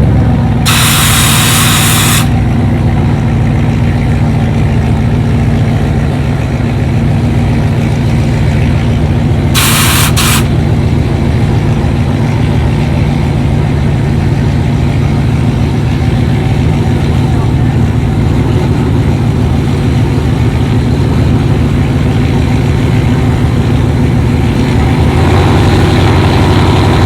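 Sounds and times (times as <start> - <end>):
vehicle engine running: 0.0 - 27.0
sharp hiss: 0.7 - 2.3, 9.6 - 10.5.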